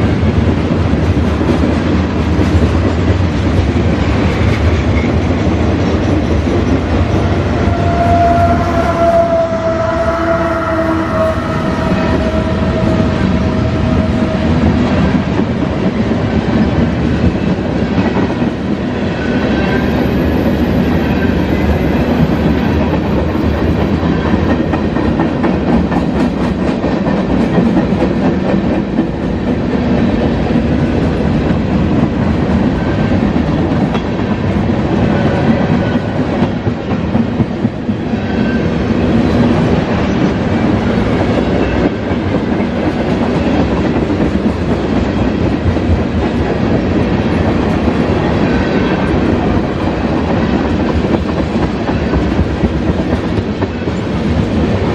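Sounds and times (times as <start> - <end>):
freight train cars rumbling: 0.0 - 54.9
steady tone: 6.6 - 15.3.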